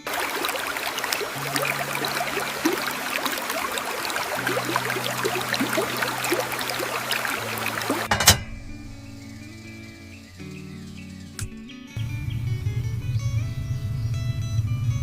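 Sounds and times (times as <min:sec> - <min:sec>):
rain patter: 0:00.0 - 0:08.1
sharp click: 0:11.4 - 0:11.6.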